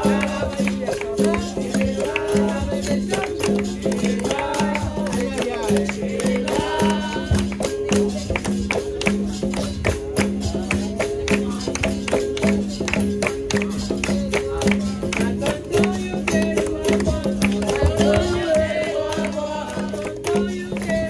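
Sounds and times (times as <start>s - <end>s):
pandeiro and percussion: 0.0s - 21.0s.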